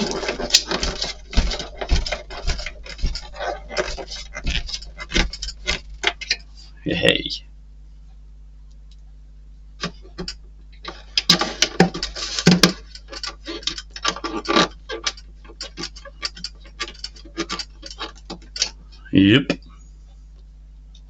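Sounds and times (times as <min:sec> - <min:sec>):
plastic parts clicking and rattling: 0:00.0 - 0:06.4, 0:09.8 - 0:18.8
low electrical hum: 0:00.0 - 0:21.0.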